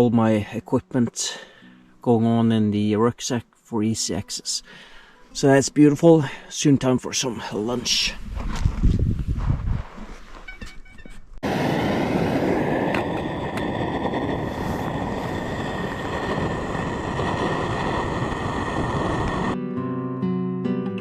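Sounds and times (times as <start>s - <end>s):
camp stove burner rushing: 11.4s - 19.6s.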